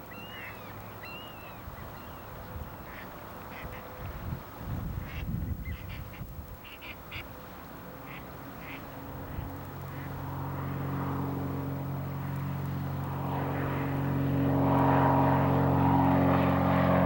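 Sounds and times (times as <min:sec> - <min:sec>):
engine hum: 0:00.0 - 0:17.0
ducks quacking: 0:08.0 - 0:08.9.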